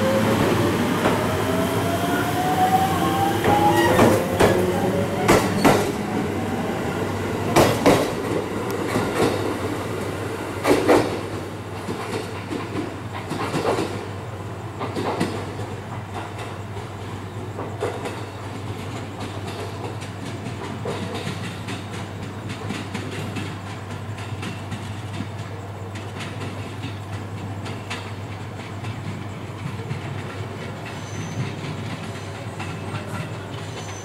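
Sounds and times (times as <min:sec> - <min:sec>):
high-pitched squeal: 0:00.0 - 0:06.6
train wheels clicking over rail joints: 0:00.3 - 0:34.0.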